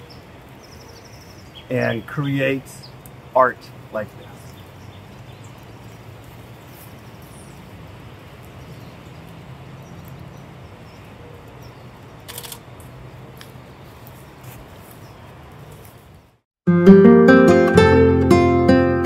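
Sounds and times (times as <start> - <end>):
outdoor background noise: 0.0 - 16.5
cluster of clicks: 11.4 - 13.6.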